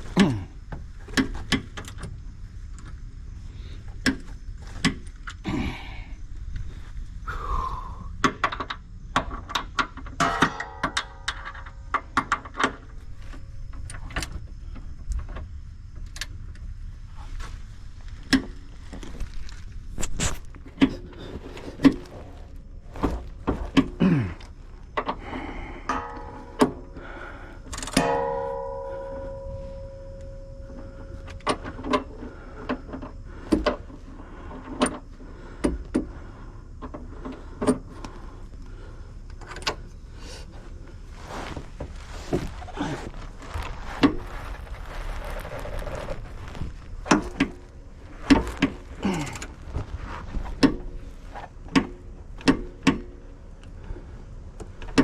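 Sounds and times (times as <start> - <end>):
struck metal part ringing: 10.2 - 12.0, 25.8 - 27.0, 27.8 - 31.9.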